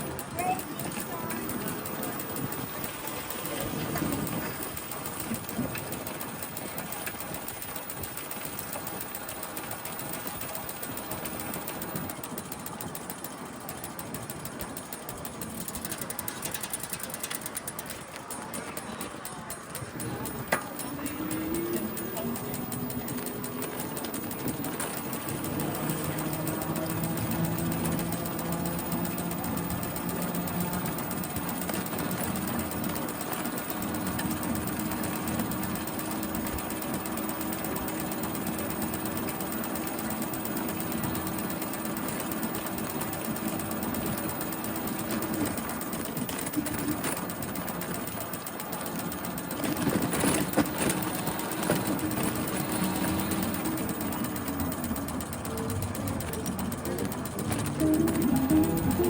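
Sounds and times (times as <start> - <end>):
bicycle mechanical rattle: 0.0 - 59.0
steady hum: 51.4 - 59.0.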